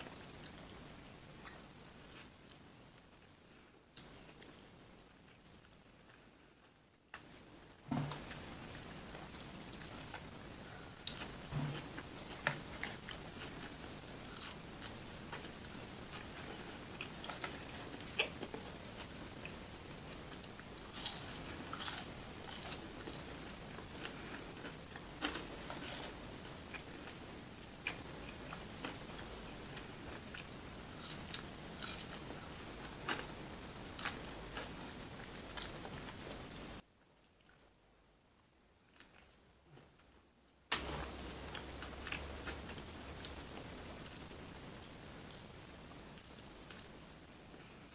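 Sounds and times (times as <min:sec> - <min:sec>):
steady hiss: 0:07.2 - 0:36.8, 0:40.7 - 0:47.9
person chewing food: 0:08.1 - 0:23.2, 0:27.8 - 0:36.4, 0:41.2 - 0:45.0.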